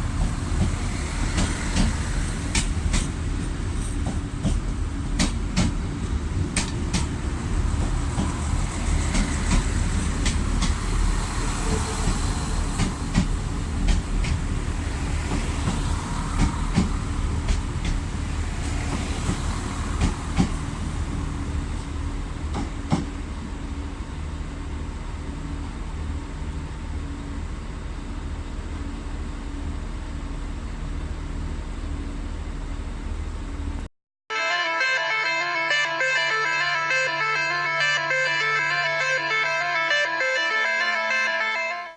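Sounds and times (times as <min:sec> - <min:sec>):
wheels clicking over rail joints: 0:00.0 - 0:20.8
diesel train engine rumble: 0:00.0 - 0:41.9.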